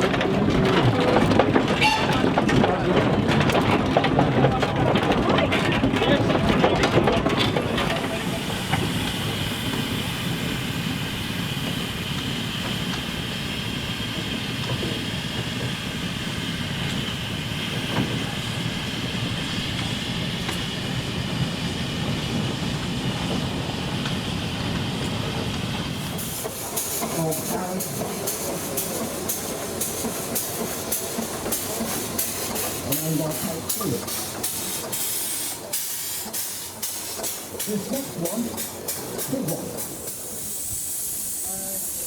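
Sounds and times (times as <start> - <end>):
steam hissing: 8.0 - 25.2, 25.8 - 42.0.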